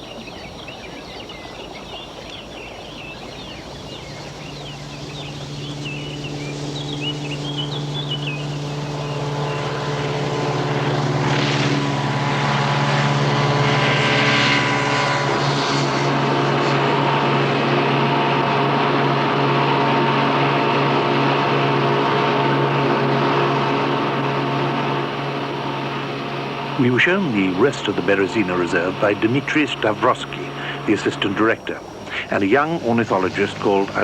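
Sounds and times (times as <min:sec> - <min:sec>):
engine drone: 0:00.0 - 0:34.0.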